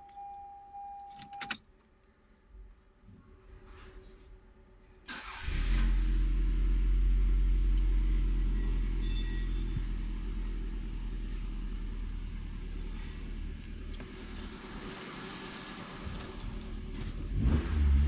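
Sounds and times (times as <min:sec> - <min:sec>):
car engine idling: 0:05.3 - 0:17.5.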